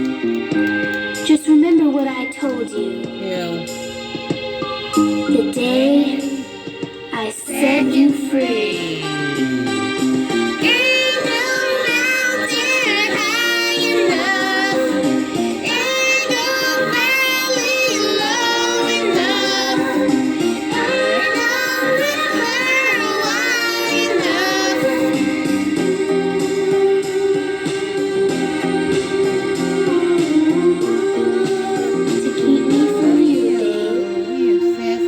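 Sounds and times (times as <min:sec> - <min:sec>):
backing track of sustained notes: 0:00.0 - 0:35.0
high voice singing wordless runs: 0:05.2 - 0:10.0, 0:10.6 - 0:25.5, 0:26.4 - 0:35.0.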